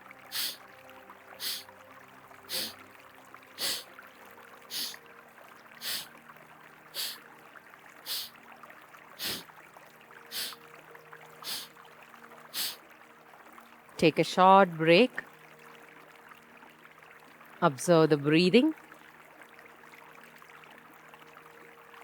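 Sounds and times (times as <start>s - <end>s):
forceful nasal exhalations: 0.3s - 0.6s, 1.4s - 1.7s, 2.5s - 2.8s, 3.6s - 3.9s, 4.7s - 5.0s, 5.8s - 6.1s, 7.0s - 7.2s, 8.1s - 8.3s, 9.2s - 9.5s, 10.3s - 10.6s, 11.4s - 11.7s, 12.6s - 12.8s.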